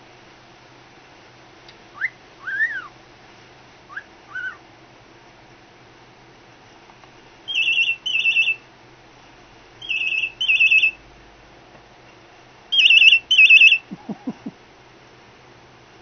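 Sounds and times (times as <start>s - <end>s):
cockatiel imitating phone ringing: 7.5s - 8.6s, 12.8s - 13.9s.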